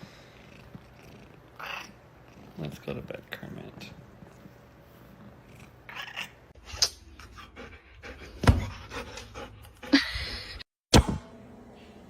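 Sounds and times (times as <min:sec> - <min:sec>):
pet panting: 0:07.2 - 0:10.1.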